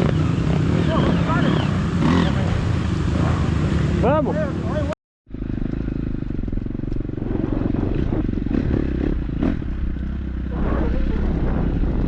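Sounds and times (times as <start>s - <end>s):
dirt bike engine running: 5.3s - 12.0s.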